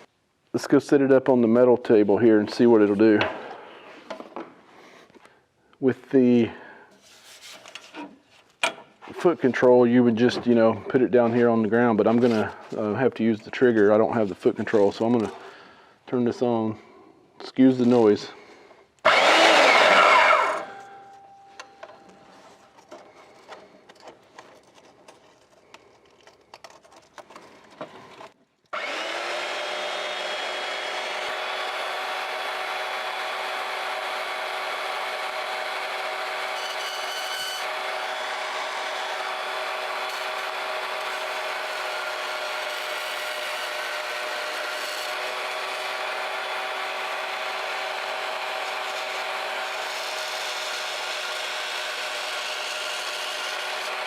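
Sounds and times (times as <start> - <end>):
bandsaw cutting metal: 19.0 - 21.0, 28.7 - 54.0.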